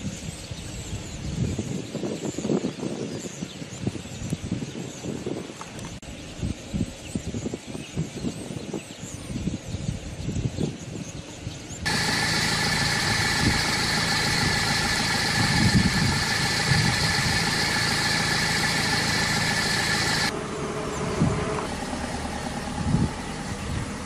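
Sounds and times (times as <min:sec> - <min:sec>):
car engine running: 0:11.9 - 0:24.0
hum and whine: 0:11.9 - 0:24.0.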